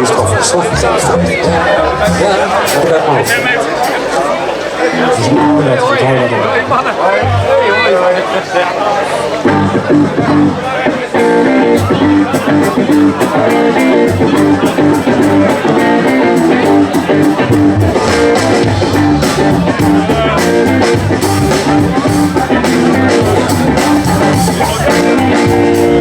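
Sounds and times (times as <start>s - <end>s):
steady drum beat: 0.0s - 5.2s, 11.2s - 26.0s
electric guitar: 9.1s - 26.0s.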